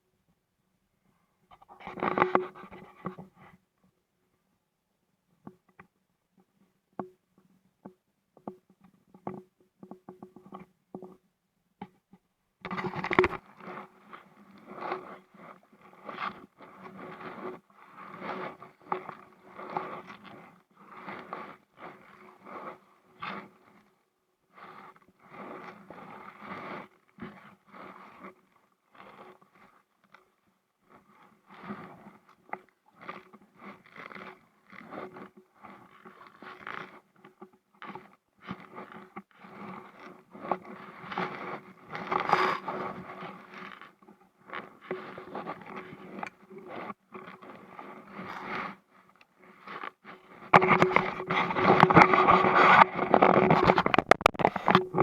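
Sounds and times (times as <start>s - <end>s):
close scraping and rubbing: 12.6s - 55.0s
clicks and knocks: 50.5s - 55.0s.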